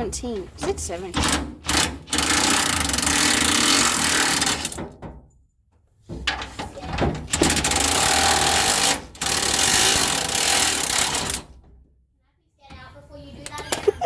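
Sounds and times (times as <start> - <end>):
impact wrench rattling: 0.7 - 4.8, 7.3 - 11.4.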